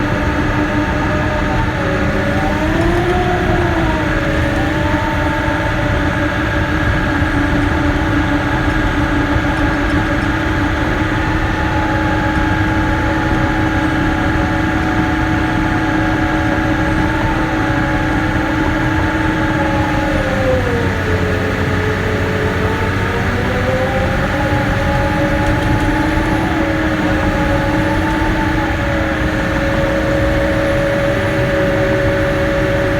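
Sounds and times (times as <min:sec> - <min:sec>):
bulldozer diesel engine running: 0:00.0 - 0:32.9.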